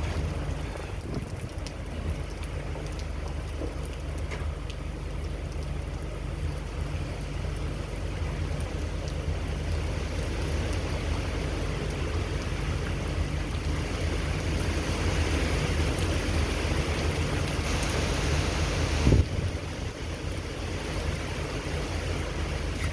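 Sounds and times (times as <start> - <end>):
heavy rain: 0.0 - 22.9
hurricane wind: 0.0 - 22.9
low rumble: 0.0 - 22.9.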